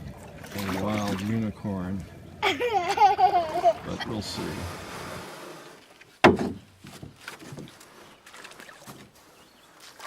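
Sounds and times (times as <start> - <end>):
water sounds: 0.0 - 10.0
knocks on boat hull: 6.2 - 7.7.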